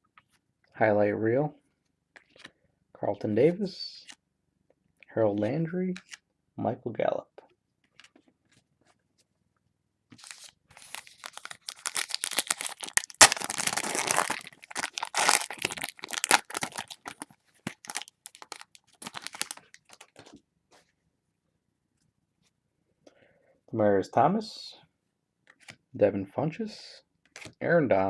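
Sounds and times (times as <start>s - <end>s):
foil wrapper tearing and crinkling: 10.2s - 20.1s.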